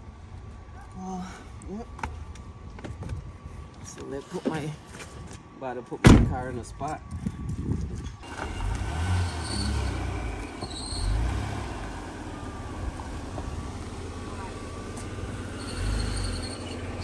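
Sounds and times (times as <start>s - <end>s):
car engine running slowly: 8.2s - 17.0s.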